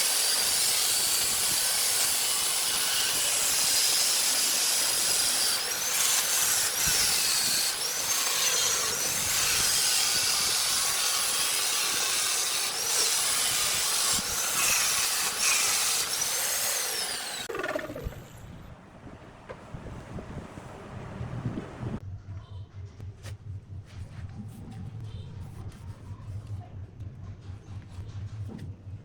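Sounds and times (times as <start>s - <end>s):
power tool whining on wood: 0.0s - 18.4s
motor spinning down: 14.0s - 18.6s.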